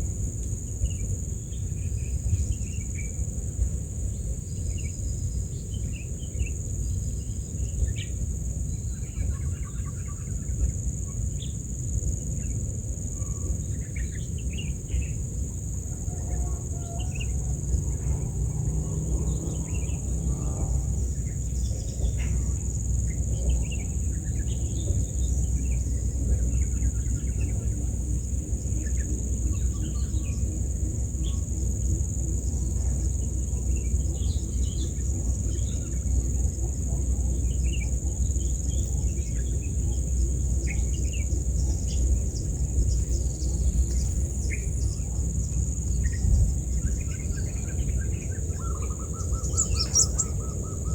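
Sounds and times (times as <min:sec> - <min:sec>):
insects droning: 0:00.0 - 0:50.9
bird chirps: 0:46.8 - 0:50.9.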